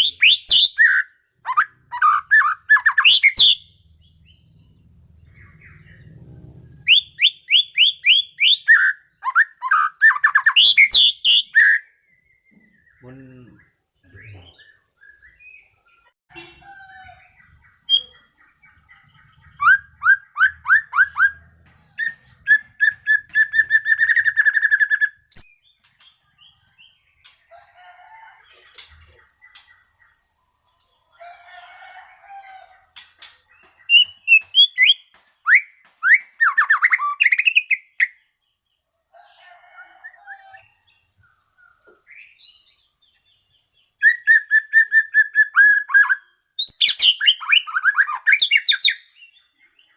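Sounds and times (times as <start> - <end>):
bird singing trills and whistles: 0.0 - 27.0, 32.8 - 38.4, 43.8 - 49.9.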